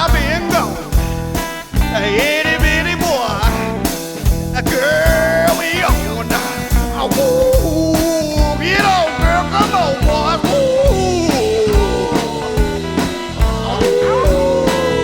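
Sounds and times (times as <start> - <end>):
blues band playing live: 0.0 - 15.0
drums steady beat: 0.0 - 15.0.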